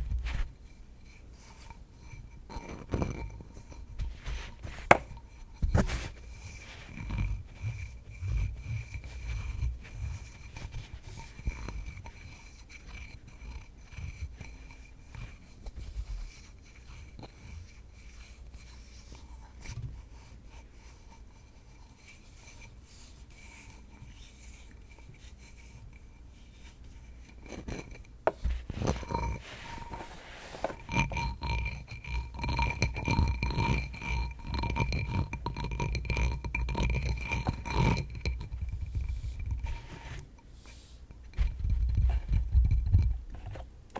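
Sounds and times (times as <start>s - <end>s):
light scratching: 3.6s - 13.3s, 26.4s - 31.3s, 37.3s - 42.4s.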